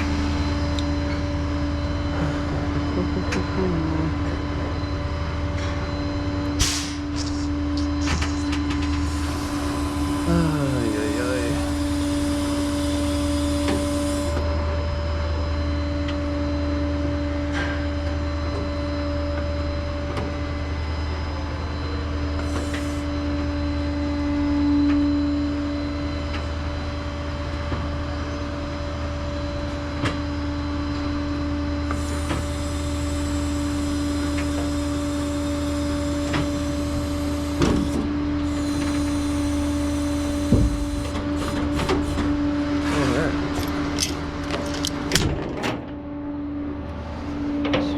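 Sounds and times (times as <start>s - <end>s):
truck engine humming: 0.0s - 14.4s, 38.5s - 45.2s
constant whine: 0.0s - 47.9s.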